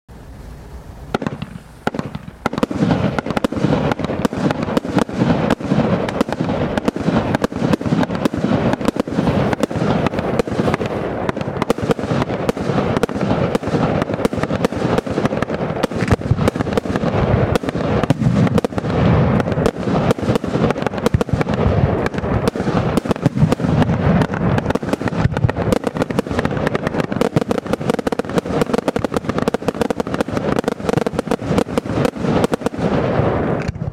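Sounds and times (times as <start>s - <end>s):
firework barrage launches and bursts: 0.1s - 33.9s.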